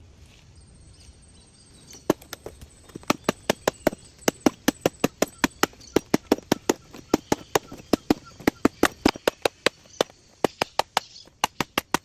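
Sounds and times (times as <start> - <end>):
tool striking bamboo: 7.7 - 12.0.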